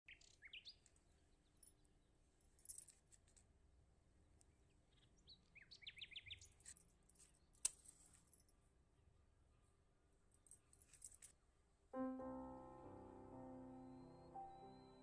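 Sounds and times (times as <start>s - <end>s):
birds chirping: 0.1s - 1.9s, 4.5s - 6.7s, 12.2s - 15.0s.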